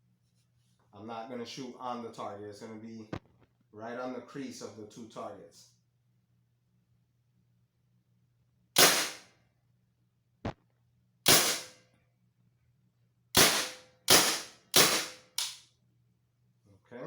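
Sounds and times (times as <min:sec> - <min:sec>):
paintball marker shots: 0:11.3 - 0:11.8, 0:13.4 - 0:15.6.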